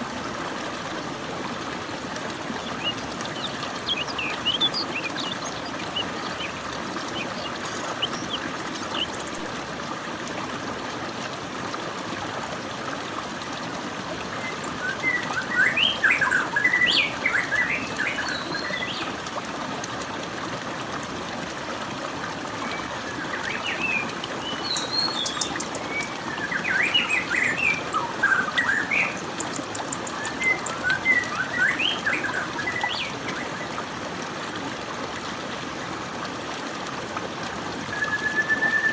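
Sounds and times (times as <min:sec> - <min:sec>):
flowing water rushing: 0:00.0 - 0:38.9
small birds chirping: 0:02.7 - 0:09.4, 0:22.7 - 0:33.2.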